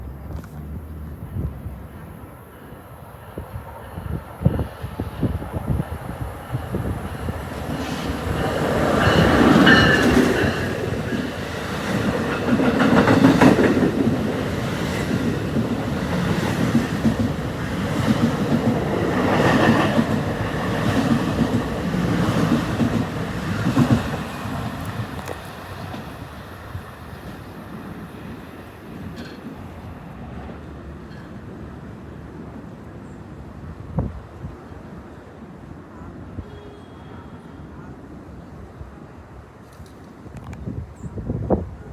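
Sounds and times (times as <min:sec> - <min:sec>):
train wheels clattering over rails: 0:07.2 - 0:31.6.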